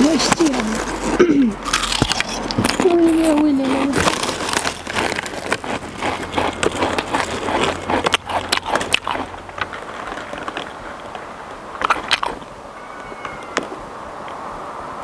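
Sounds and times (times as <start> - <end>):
open-mouthed chewing and lip-smacking: 3.6 - 12.5.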